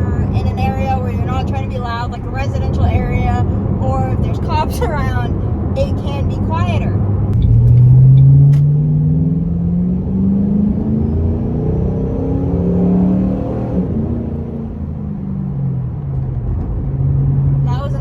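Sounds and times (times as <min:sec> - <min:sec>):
car exhaust accelerating: 0:00.0 - 0:18.0.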